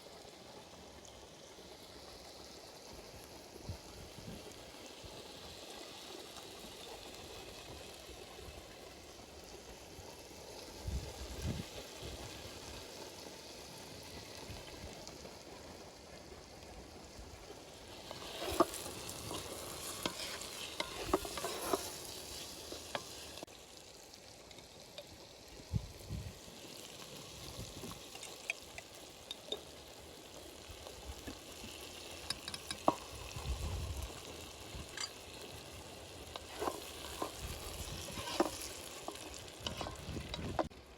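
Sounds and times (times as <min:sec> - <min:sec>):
food sizzling in hot oil: 0:00.0 - 0:40.9
ladle scraping metal pot: 0:17.9 - 0:23.4, 0:36.3 - 0:40.7.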